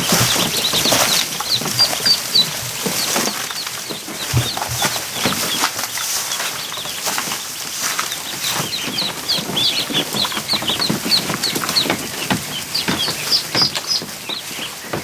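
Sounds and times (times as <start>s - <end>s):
ducklings peeping: 0.0s - 15.0s
small knocks and scuffles: 0.0s - 15.0s.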